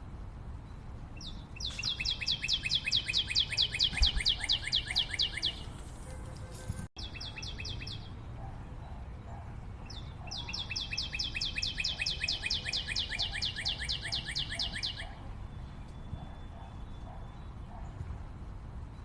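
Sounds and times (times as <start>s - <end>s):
bird calling in sharp notes: 1.2s - 5.7s, 10.3s - 15.2s.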